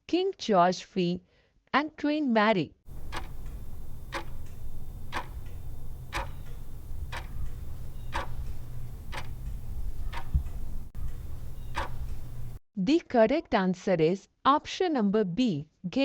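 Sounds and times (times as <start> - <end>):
clock ticking: 2.9 - 12.6
steady low hum: 2.9 - 12.6.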